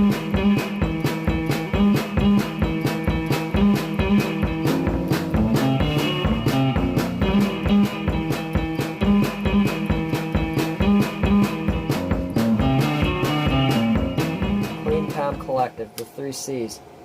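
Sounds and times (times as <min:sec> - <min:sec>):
guitar music with steady beat: 0:00.0 - 0:15.8.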